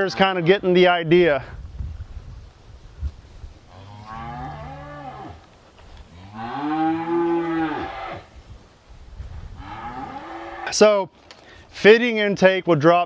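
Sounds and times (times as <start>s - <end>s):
calves bellowing: 3.6s - 8.4s, 9.5s - 10.8s.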